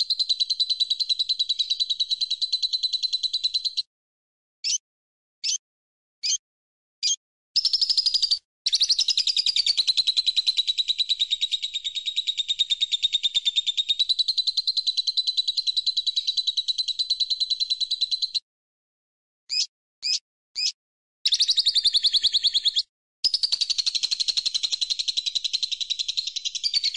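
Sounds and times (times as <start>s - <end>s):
songbird chirping and trilling: 0.0s - 3.9s, 4.6s - 4.8s, 7.0s - 18.4s, 19.5s - 26.9s.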